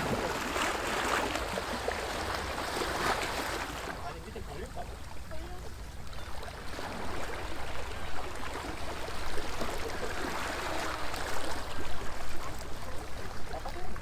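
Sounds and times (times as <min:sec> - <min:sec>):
waves lapping against stone wall: 0:00.0 - 0:14.0.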